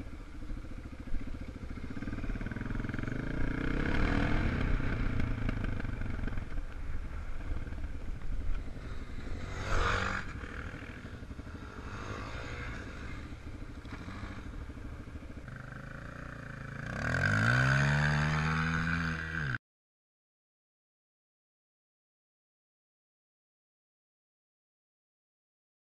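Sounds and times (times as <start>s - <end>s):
dirt bike engines running: 0.0s - 19.6s
dirt bike revving: 0.0s - 19.6s.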